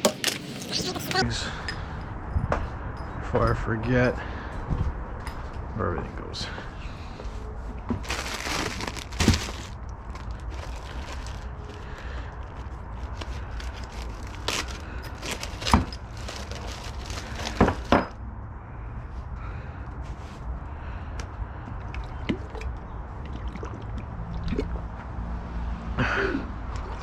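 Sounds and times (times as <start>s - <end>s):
plastic bag crinkling: 8.0s - 18.1s.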